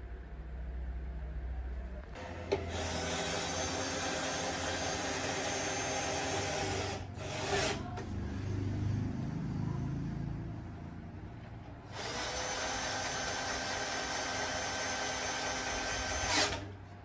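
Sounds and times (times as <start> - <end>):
power tool whining: 2.2 - 7.9, 11.9 - 16.8.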